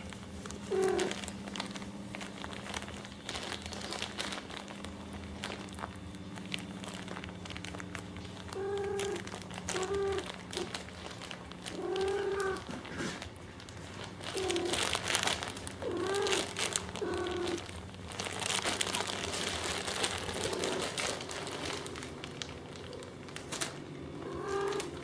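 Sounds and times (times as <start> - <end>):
paper or plastic crinkling: 0.0 - 25.0
steady low hum: 0.0 - 25.0
cat mewing: 0.6 - 1.3, 8.4 - 10.8, 11.7 - 12.8, 15.8 - 17.7, 24.1 - 25.0.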